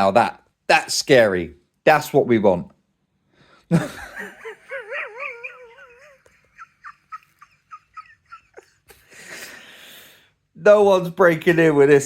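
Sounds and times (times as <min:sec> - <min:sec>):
dog whining: 0:04.6 - 0:08.7.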